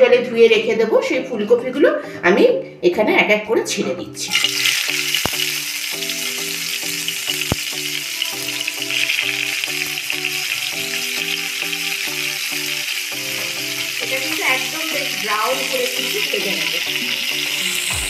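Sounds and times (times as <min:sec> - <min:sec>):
soft background music: 0:00.0 - 0:18.0
vegetables sizzling in oil: 0:04.3 - 0:18.0.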